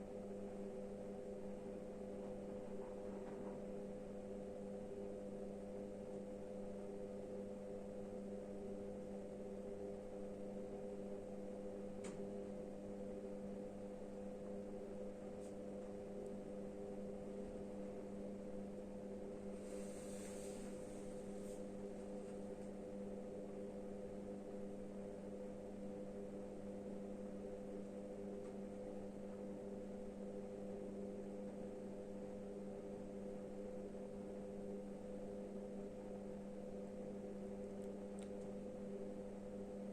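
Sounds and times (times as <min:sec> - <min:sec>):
steady low hum: 0:00.0 - 0:39.9
faint click: 0:12.0 - 0:12.2, 0:37.8 - 0:38.5
brief hiss: 0:19.6 - 0:20.9.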